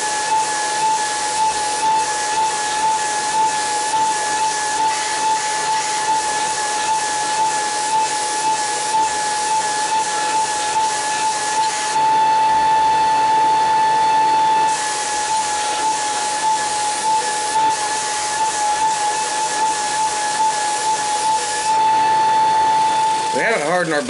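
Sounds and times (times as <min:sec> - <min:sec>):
belt grinder whining: 0:00.0 - 0:24.0
blade grinding hiss: 0:00.2 - 0:12.0, 0:14.6 - 0:21.8.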